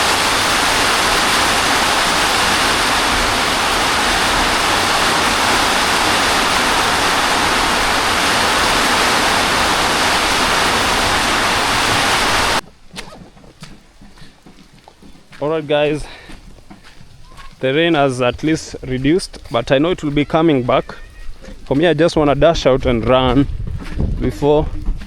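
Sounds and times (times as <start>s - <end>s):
heavy rain pouring: 0.0s - 12.6s.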